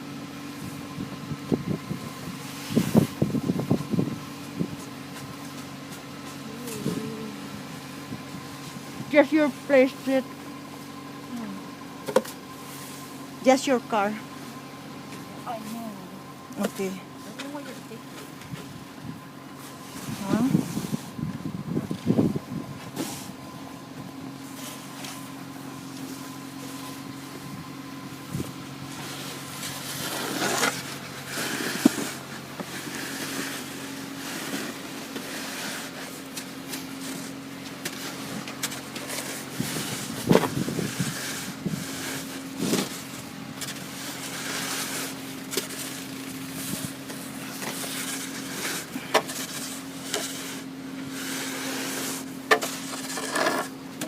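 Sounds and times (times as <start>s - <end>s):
car engine idling: 0.0s - 54.0s
snow scraped off car: 2.0s - 10.2s, 19.5s - 21.3s, 24.3s - 53.9s.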